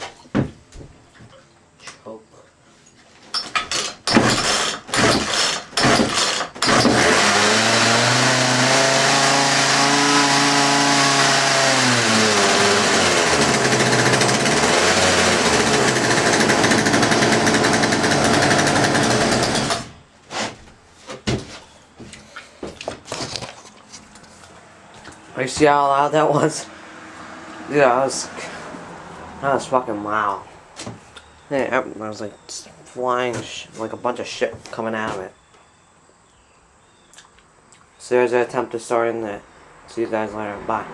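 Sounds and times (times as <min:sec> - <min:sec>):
chainsaw starting and running: 0:03.7 - 0:20.0.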